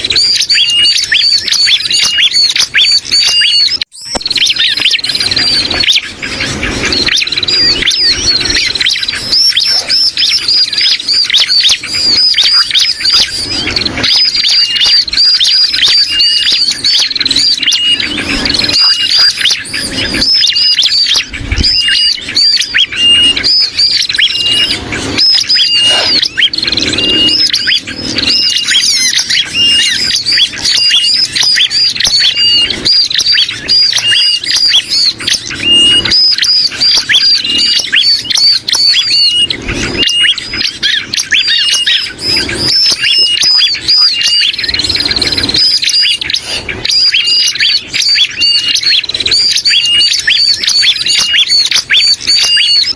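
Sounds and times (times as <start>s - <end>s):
birds chirping rapidly: 0.0s - 52.9s
whistled bird notes: 0.0s - 52.9s.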